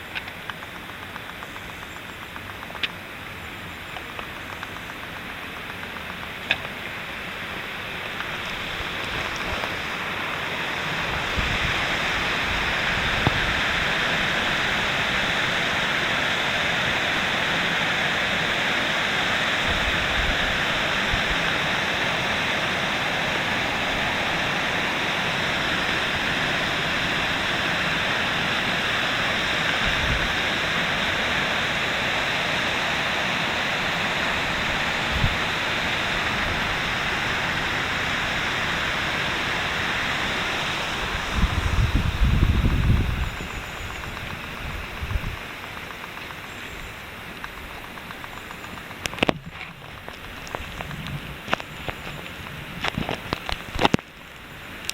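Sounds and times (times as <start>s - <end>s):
water rushing over dam: 5.2s - 46.4s.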